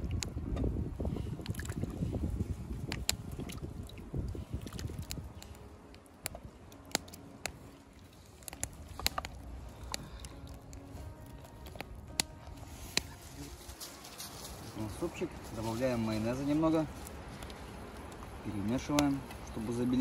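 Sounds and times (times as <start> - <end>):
wind rumble on microphone: 0.0 - 20.0
soup sloshing and dripping: 1.0 - 12.0, 17.0 - 19.7.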